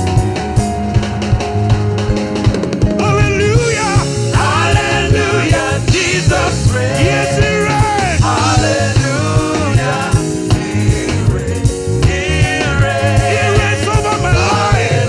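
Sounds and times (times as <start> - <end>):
band playing with drums: 0.0 - 15.0
voices singing gospel song: 3.0 - 15.0.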